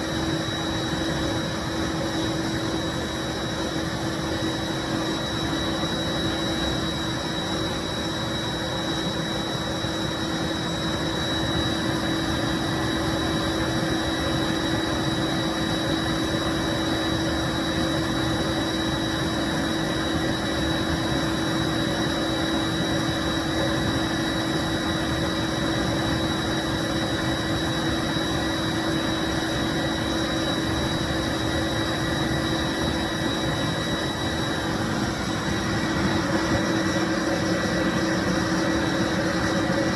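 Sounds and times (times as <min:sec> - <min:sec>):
carpet cleaning machine running: 0:25.0 - 0:39.9.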